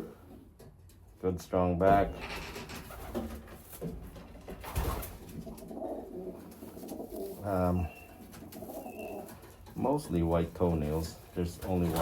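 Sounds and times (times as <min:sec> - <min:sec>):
pigeons cooing: 0:04.7 - 0:10.2.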